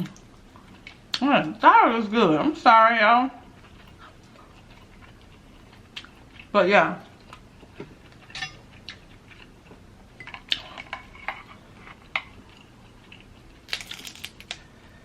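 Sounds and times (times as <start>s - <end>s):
crab legs and utensils clinking: 8.2s - 8.6s.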